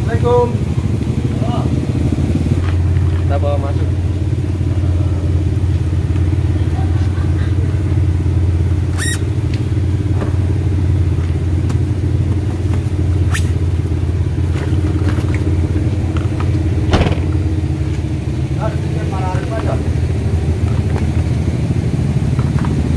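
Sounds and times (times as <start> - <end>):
car engine idling: 0.0 - 22.9
loud knock: 16.9 - 17.4.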